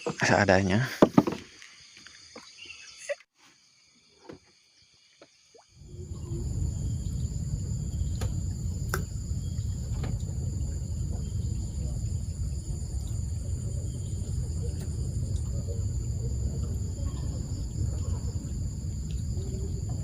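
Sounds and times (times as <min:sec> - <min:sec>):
crickets chirping: 0:00.0 - 0:20.0
low steady rumble: 0:05.8 - 0:20.0.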